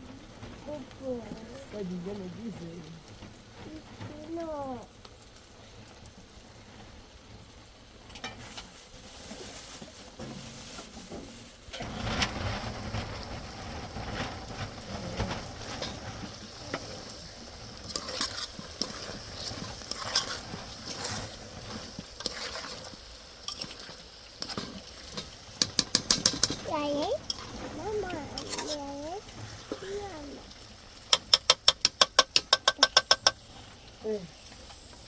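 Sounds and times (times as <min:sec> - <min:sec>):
sizzling hiss: 0:00.0 - 0:35.0
utensil stirring and knocking pot: 0:12.8 - 0:29.9, 0:31.0 - 0:33.7.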